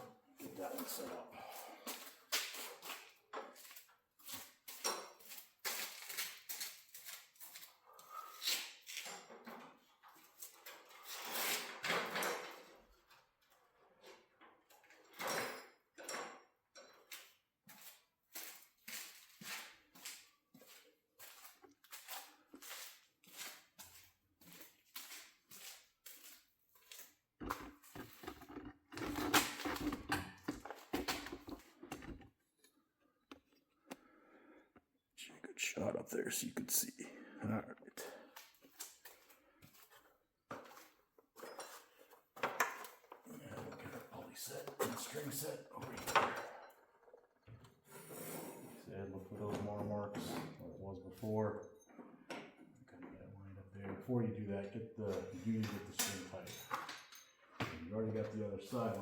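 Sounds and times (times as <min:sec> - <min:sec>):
knocking and rubbing: 0:27.4 - 0:32.4
metal tools clinking: 0:55.6 - 0:57.6.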